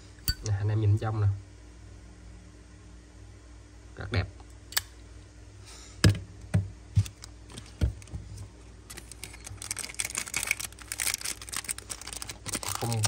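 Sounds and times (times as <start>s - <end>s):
crinkling rustle: 7.0s - 13.0s.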